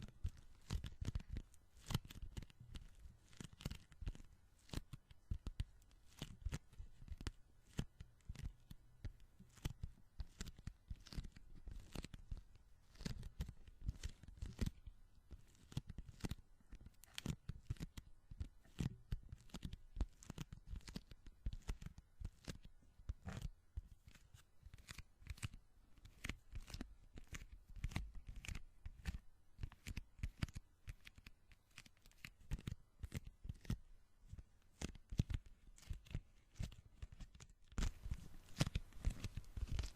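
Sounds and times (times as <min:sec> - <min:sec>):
sticky hands crackling: 0:34.7 - 0:39.9.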